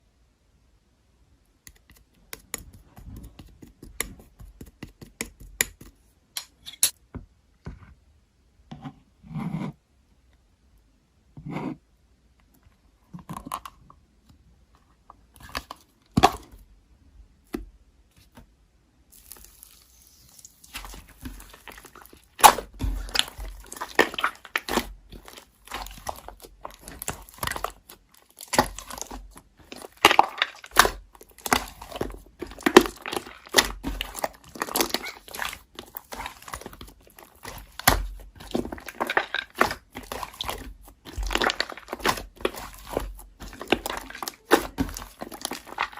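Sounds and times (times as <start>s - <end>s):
slime squishing and crackling: 19.1s - 45.9s.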